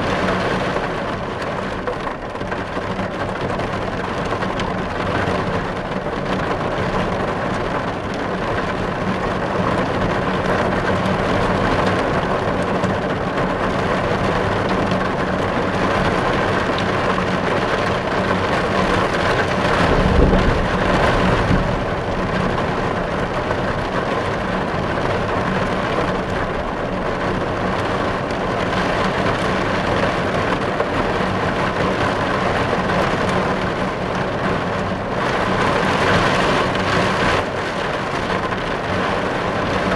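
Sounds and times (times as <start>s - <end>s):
heavy rain on car roof: 0.0s - 39.9s
low rumble: 19.5s - 24.5s.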